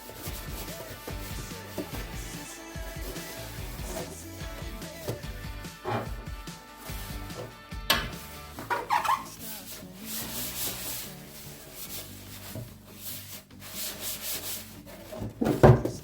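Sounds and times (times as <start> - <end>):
surface being scrubbed: 2.9 - 4.2, 5.8 - 6.3, 8.8 - 15.2.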